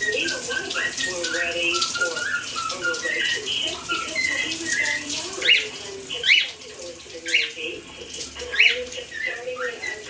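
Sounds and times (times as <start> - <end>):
cockatiel whistling: 0.0 - 5.0
running shower water: 0.0 - 10.0.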